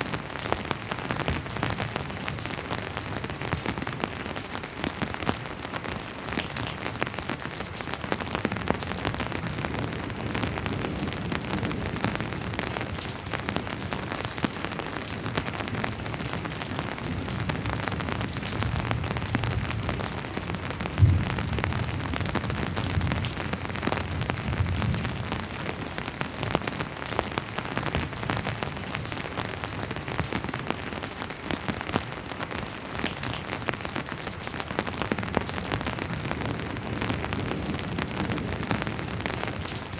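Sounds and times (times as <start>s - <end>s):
rain pattering: 0.0s - 39.9s
distant thunder rumbling: 20.8s - 25.2s
loud thunder thump: 21.0s - 21.9s.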